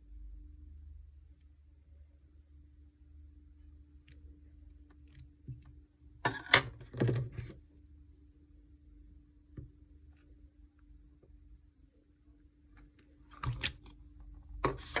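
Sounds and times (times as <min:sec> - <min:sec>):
faint steady hum: 0:00.0 - 0:15.0
slime squishing with sticky clicks: 0:12.8 - 0:14.0.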